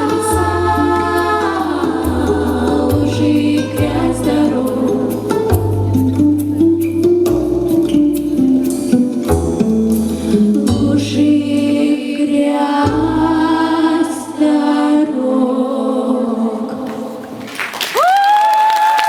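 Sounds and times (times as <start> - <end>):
girls singing in harmony: 0.0 - 6.0, 10.5 - 17.5
backing track with deep bass: 0.0 - 11.6.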